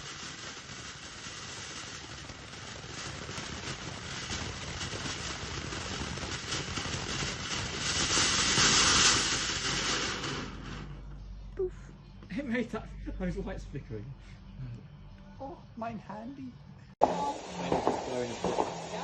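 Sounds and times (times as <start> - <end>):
firework hissing and crackling: 0.0 - 11.1, 17.0 - 19.0.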